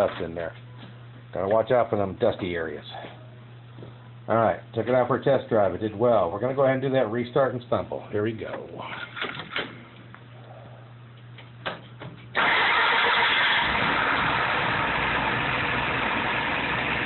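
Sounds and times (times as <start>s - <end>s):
car engine starting and running: 12.4s - 17.0s.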